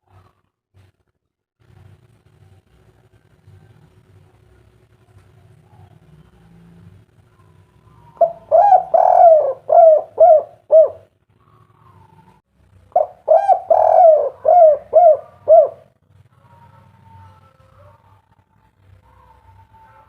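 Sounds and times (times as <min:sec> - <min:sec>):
dove cooing: 0:07.4 - 0:18.3.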